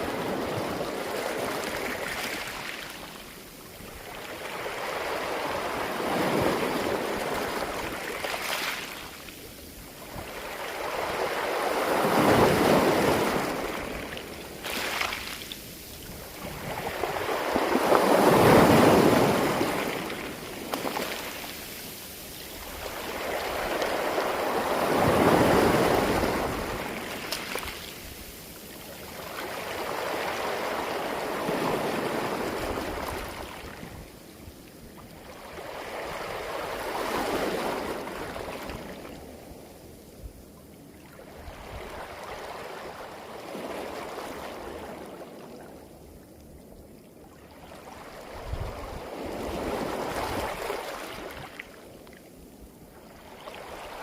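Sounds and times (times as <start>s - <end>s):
waves on pebble beach: 0.0s - 3.2s, 4.0s - 34.0s, 48.0s - 51.6s.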